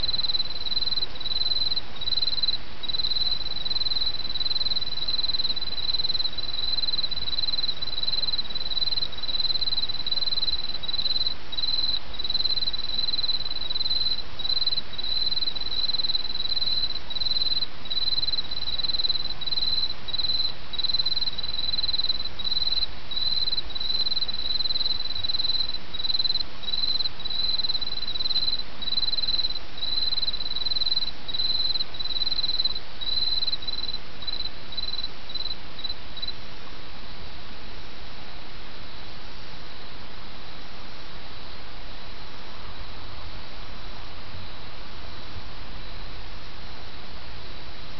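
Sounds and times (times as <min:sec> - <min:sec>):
cricket chirping: 0:00.0 - 0:36.4.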